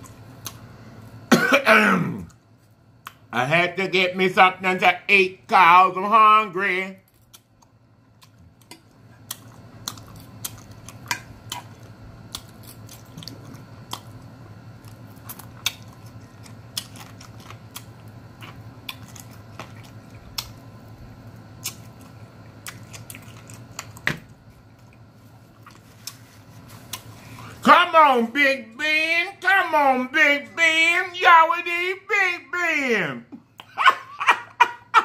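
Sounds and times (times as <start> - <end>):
steady low hum: 0.0 - 35.0
person chewing food: 7.1 - 27.6.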